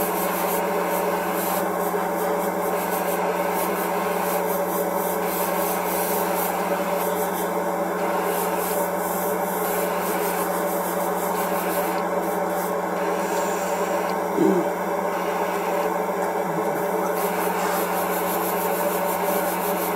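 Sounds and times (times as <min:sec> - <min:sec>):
small motor humming: 0:00.0 - 0:19.9
rubbing hiss: 0:08.2 - 0:15.7.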